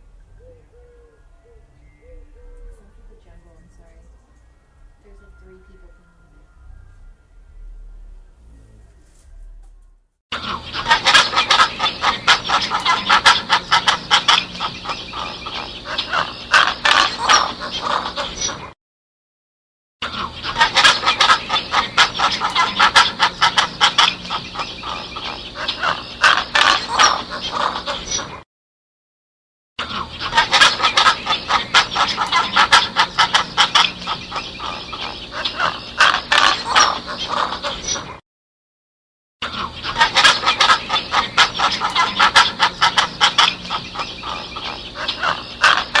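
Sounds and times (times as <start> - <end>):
fowl calling: 10.4 - 18.7, 20.0 - 28.4, 29.8 - 38.2, 39.4 - 46.0
chickens clucking: 10.4 - 18.8, 20.0 - 28.4, 29.8 - 38.2, 39.4 - 46.0.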